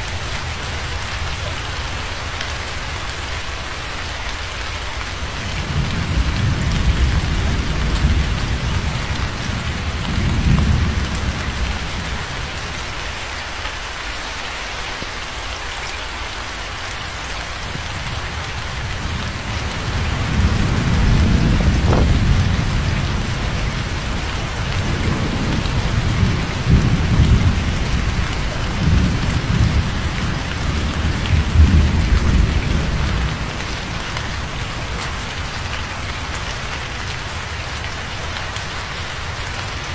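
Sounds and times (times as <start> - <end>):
heavy rain on a surface: 0.0 - 39.9
thunder rumbling and cracking: 5.2 - 12.9, 17.8 - 36.3.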